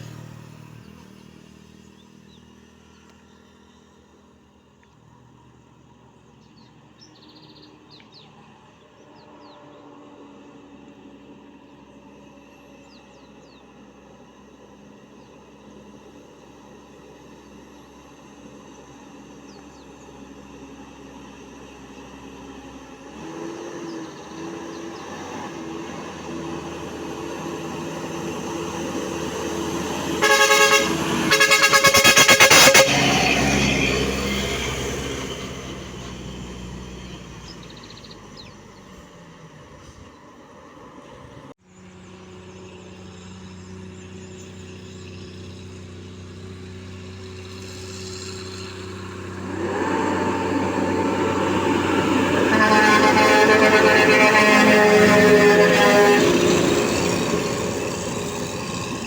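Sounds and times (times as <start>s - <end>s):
truck engine: 0.0s - 59.0s
vehicle approaching: 0.0s - 59.0s
truck horn blasts: 24.4s - 36.3s, 46.6s - 59.0s.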